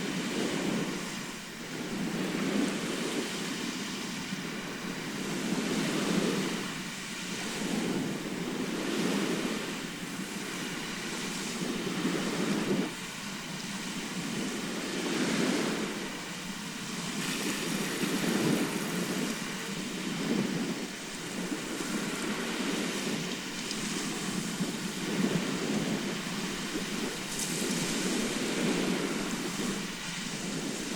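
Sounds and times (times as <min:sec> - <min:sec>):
waves breaking: 0:00.0 - 0:30.9.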